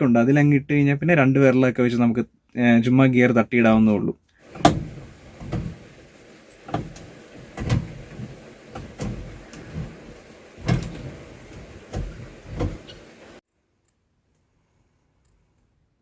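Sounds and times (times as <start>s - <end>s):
gear lever clunks and clicks: 4.5s - 13.3s.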